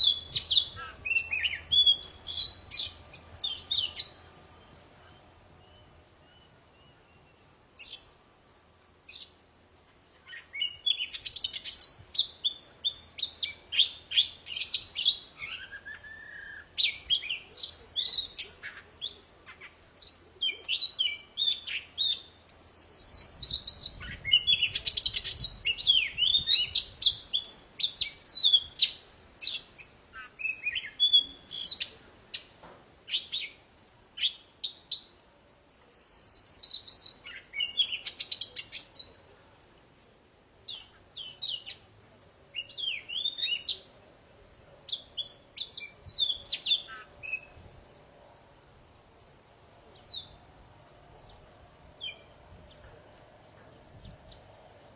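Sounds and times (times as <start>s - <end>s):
bird singing: 0.0s - 8.2s, 10.2s - 32.5s, 35.7s - 39.1s, 42.5s - 43.9s, 48.8s - 50.4s, 51.2s - 54.9s.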